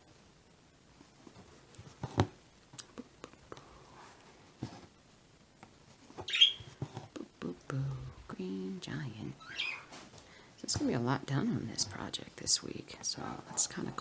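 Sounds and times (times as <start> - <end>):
bird chirp: 6.3 - 6.7, 9.4 - 9.9.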